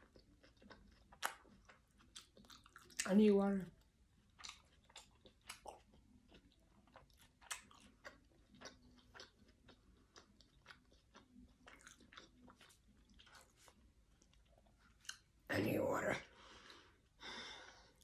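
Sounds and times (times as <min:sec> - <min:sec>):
chewing with lip smacking: 0:00.0 - 0:03.2, 0:04.2 - 0:15.3.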